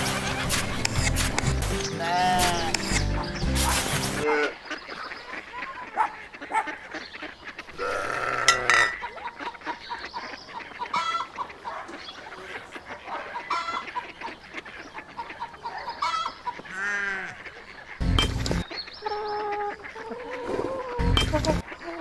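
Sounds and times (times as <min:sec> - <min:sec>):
honk-like calls: 0:00.0 - 0:09.2, 0:19.5 - 0:22.0
chickens clucking: 0:00.0 - 0:22.0.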